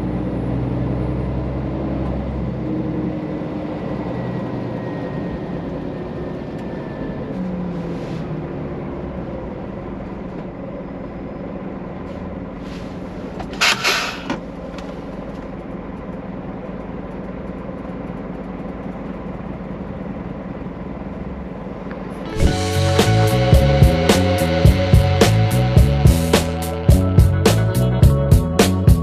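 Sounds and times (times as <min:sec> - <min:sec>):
loud air hiss: 0:22.3 - 0:23.2.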